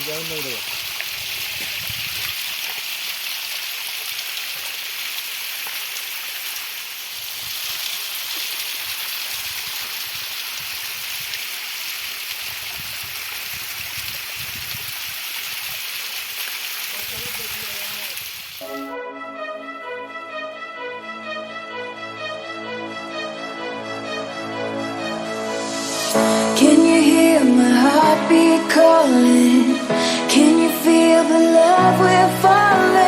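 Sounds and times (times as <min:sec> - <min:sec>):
stream water flowing: 0:00.0 - 0:18.7.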